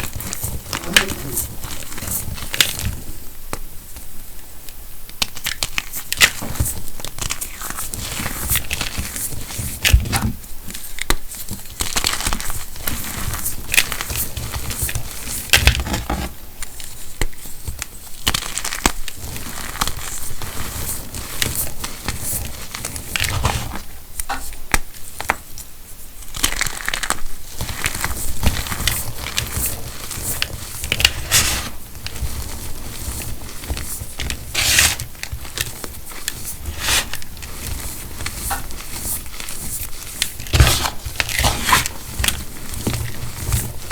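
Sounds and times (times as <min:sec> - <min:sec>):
chalk being crushed: 0:26.4 - 0:43.9.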